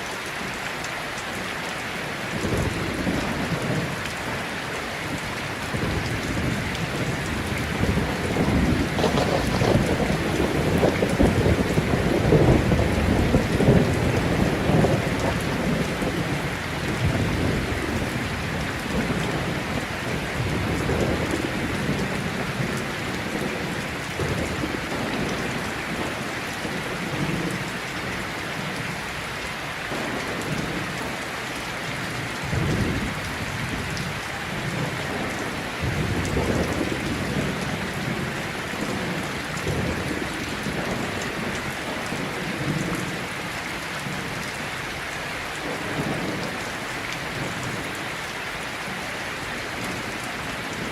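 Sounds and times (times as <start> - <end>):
heavy rain: 0.0 - 50.9
rolling thunder: 5.2 - 27.7, 32.0 - 43.3.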